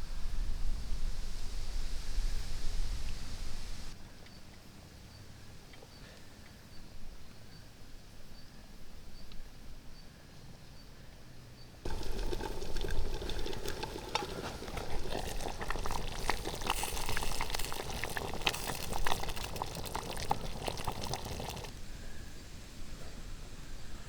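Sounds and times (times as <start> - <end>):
liquid bubbling in a pot: 11.9 - 21.8.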